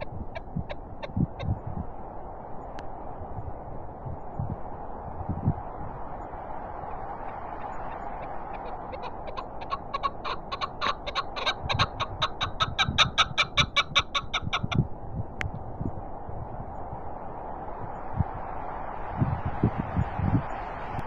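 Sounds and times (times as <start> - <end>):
partridge clucking call: 0.0 - 1.5, 7.6 - 14.8
wind noise: 0.0 - 21.0.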